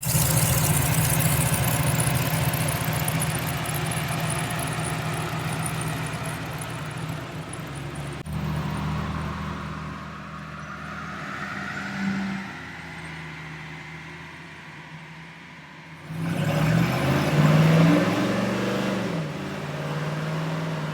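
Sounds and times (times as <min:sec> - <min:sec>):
pickup engine idling: 0:00.0 - 0:08.3
faint rising whine: 0:00.0 - 0:16.0.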